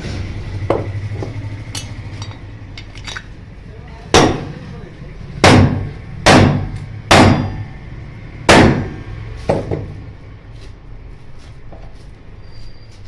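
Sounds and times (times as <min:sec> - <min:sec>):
hammer striking metal: 0:01.7 - 0:02.9, 0:04.1 - 0:04.5, 0:05.4 - 0:07.8, 0:08.5 - 0:09.9.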